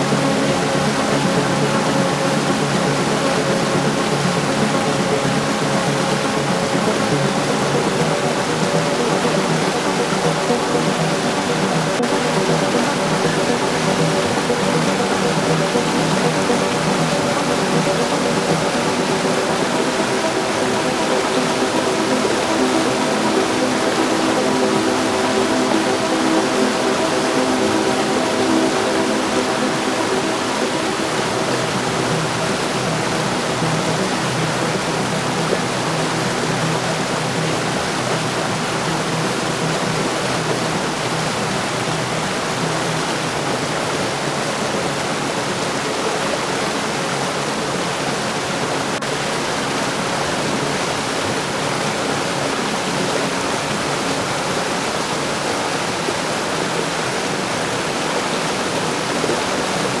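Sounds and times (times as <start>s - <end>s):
faint low tones: 0.0s - 43.4s
heavy rain falling: 0.0s - 46.1s.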